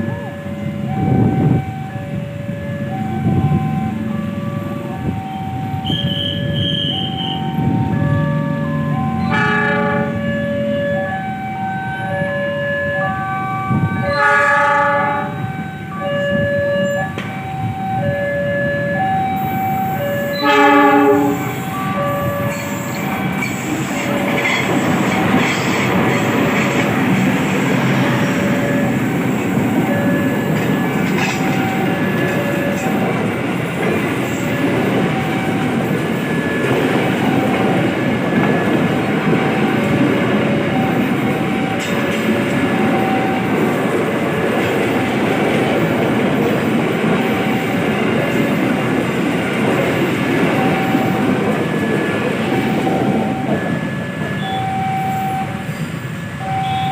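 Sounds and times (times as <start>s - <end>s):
two-note crossing warning bell: 0.0s - 27.0s, 27.7s - 33.4s, 40.7s - 43.6s, 50.5s - 56.9s
train horn blast: 8.3s - 10.3s, 14.0s - 15.5s, 20.3s - 22.6s
train wheels clattering on rails: 19.3s - 56.9s.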